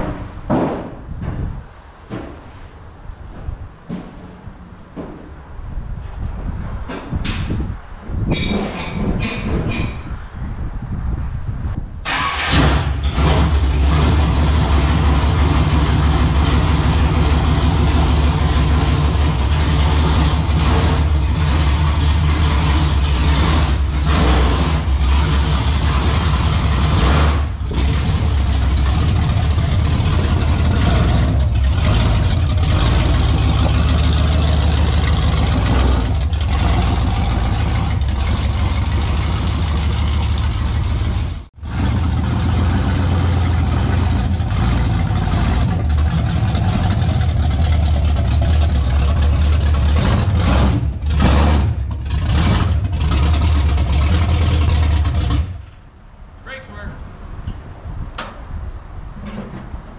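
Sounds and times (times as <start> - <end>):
race car engine running: 12.9 - 55.6.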